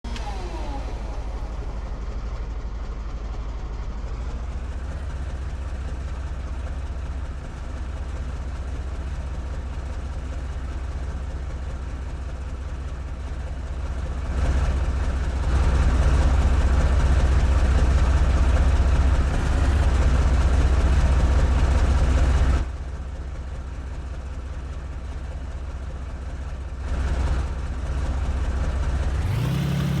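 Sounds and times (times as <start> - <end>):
tornado roaring: 19.3 - 20.1.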